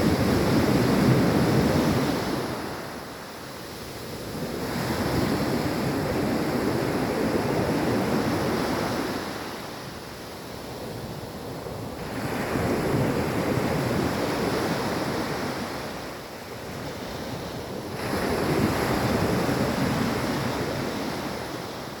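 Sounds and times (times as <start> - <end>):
ocean waves breaking on beach: 0.0 - 22.0.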